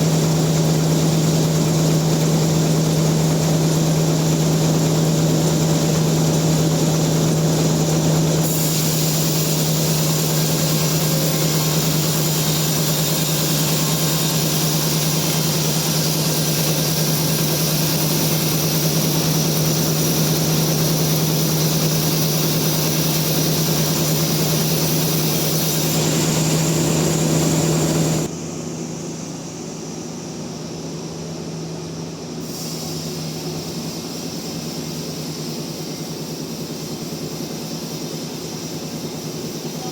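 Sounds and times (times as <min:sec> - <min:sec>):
sawmill saw running: 0:00.0 - 0:39.9.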